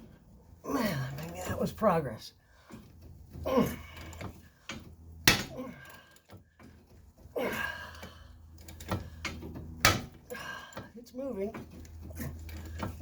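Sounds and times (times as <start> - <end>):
sharp pop of metal breaking loose: 5.2 - 5.6, 9.8 - 10.2.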